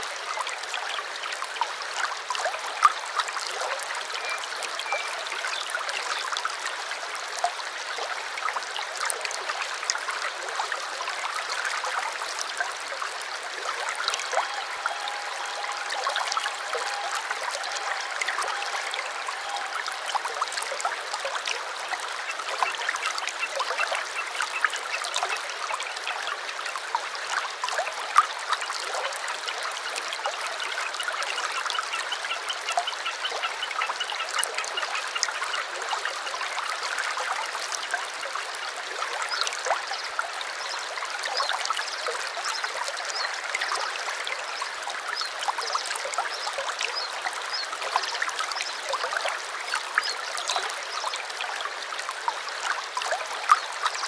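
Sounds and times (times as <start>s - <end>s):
stream babbling over stones: 0.0s - 54.0s
birds chirping: 14.2s - 20.4s.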